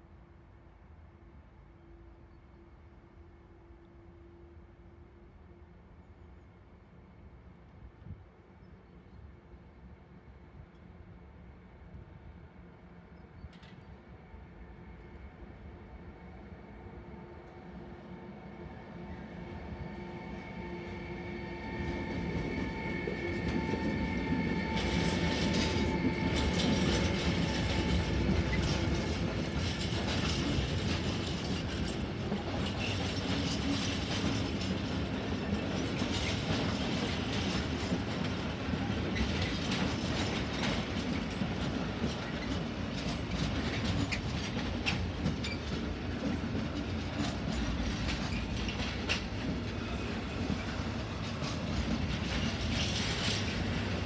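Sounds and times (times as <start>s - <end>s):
electric locomotive whining: 13.1s - 54.0s
train wheels clacking over rail joints: 22.1s - 54.0s.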